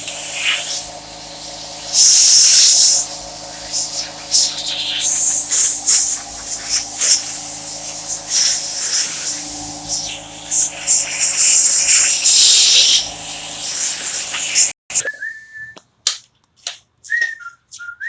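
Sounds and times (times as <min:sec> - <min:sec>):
loud hissing air: 0:00.0 - 0:15.0
compressor hum: 0:00.0 - 0:15.3
short whistled notes: 0:14.9 - 0:15.8.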